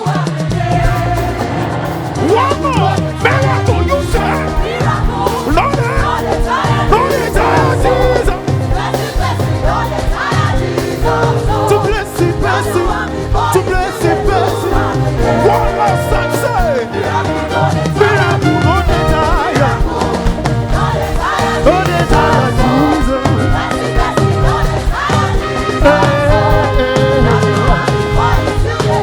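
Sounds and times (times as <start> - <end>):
gospel band playing: 0.0 - 29.0.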